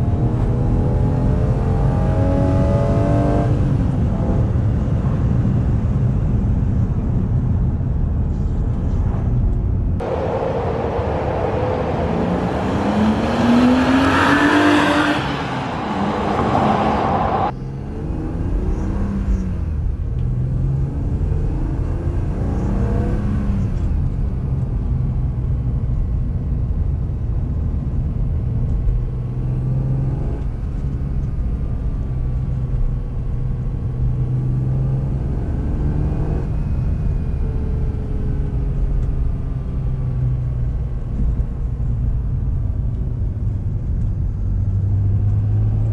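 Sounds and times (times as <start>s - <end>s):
car engine accelerating: 0.0s - 7.2s, 8.3s - 45.9s
loud rushing noise: 10.0s - 17.5s.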